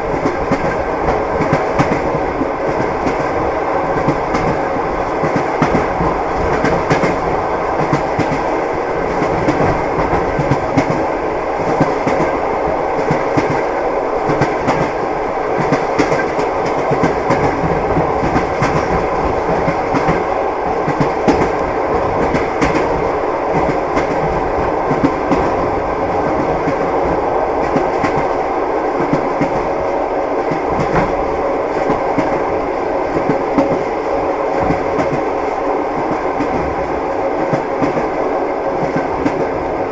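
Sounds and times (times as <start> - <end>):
train wheels clattering: 15.6 - 28.4.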